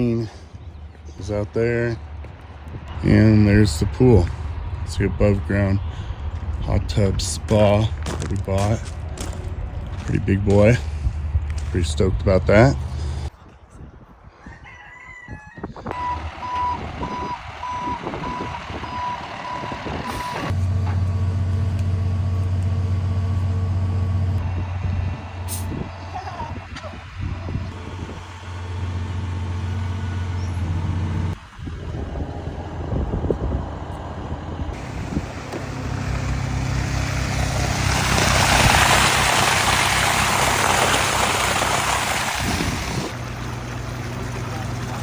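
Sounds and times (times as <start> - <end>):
truck engine running: 0.0 - 13.3, 16.0 - 45.0.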